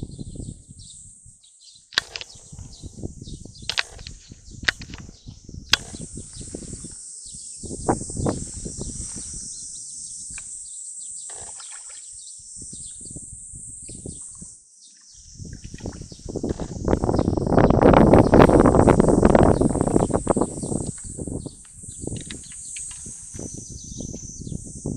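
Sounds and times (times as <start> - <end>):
wind buffeting the microphone: 0.0 - 1.4, 2.0 - 10.6, 12.2 - 14.6, 15.2 - 24.9
sharp clicks: 2.0 - 2.7, 3.6 - 5.1, 22.1 - 23.1.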